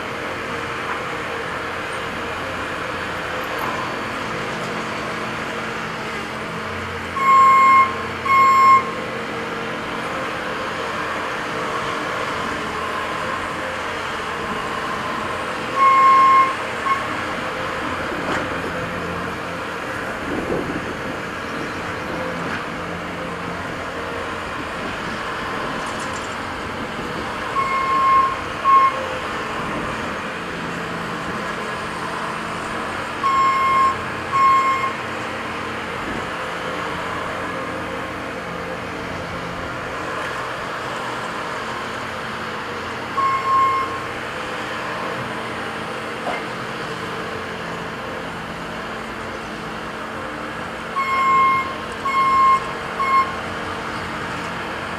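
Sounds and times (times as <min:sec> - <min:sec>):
heavy diesel machines running: 0:00.0 - 0:54.9
backup alarm beeping: 0:07.2 - 0:09.0.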